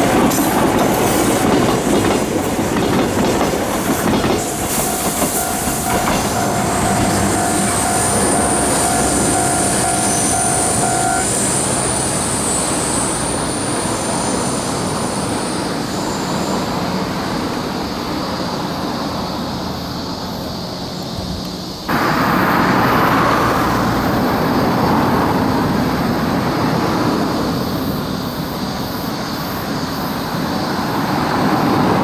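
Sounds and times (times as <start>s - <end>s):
train wheels rumbling on rail: 0.0s - 32.0s
steady whine: 3.0s - 12.9s
high squeal: 3.6s - 16.8s.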